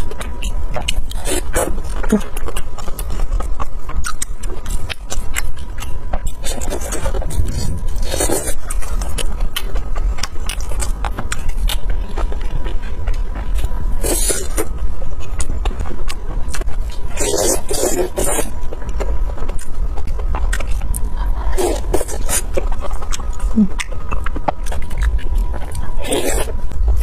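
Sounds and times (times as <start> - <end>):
steady low rumble: 0.0 - 27.0
wet chewing and mouth sounds: 0.0 - 27.0.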